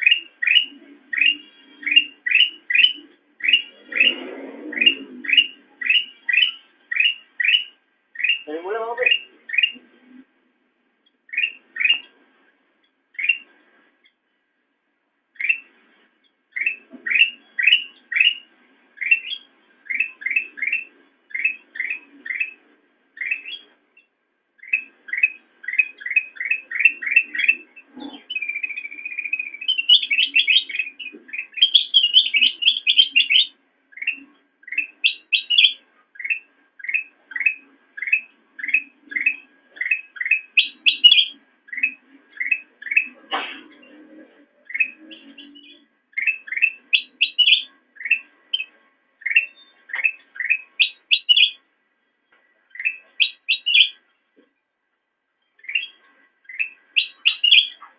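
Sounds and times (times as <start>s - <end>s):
buzzy bird trill: 0.0s - 9.8s, 11.3s - 12.1s, 13.1s - 13.5s, 16.5s - 43.2s, 44.6s - 51.7s, 52.7s - 54.0s, 55.4s - 57.9s
bulbul chirping song: 0.0s - 10.3s, 11.0s - 12.2s, 12.8s - 14.3s, 15.3s - 51.7s, 52.4s - 54.2s, 55.3s - 57.9s.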